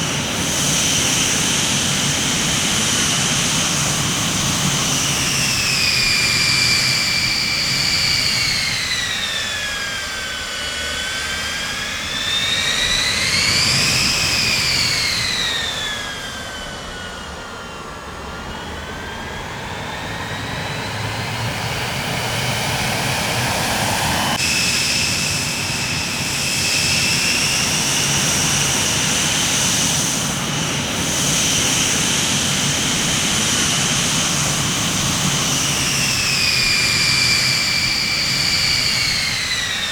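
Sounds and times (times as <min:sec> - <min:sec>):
jet engine turbine whine: 0:00.0 - 0:39.9.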